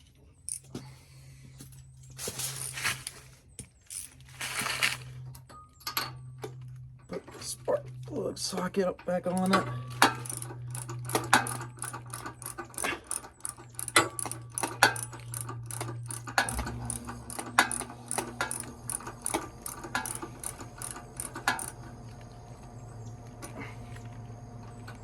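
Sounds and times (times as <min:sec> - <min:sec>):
steady low hum: 0:00.1 - 0:25.0
ratchet clicking: 0:09.2 - 0:21.8.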